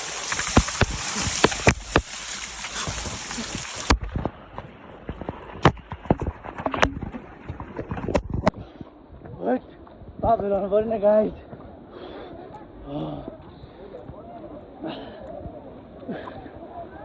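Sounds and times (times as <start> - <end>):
water gushing from spouts: 0.0 - 8.4.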